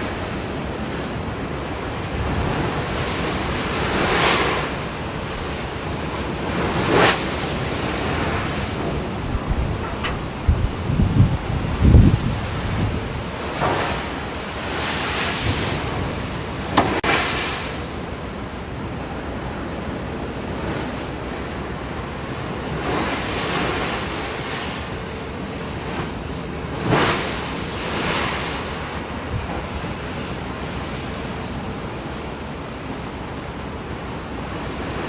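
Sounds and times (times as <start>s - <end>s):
wind buffeting microphone: 0.0s - 22.0s
waves breaking against a ship: 0.0s - 35.0s.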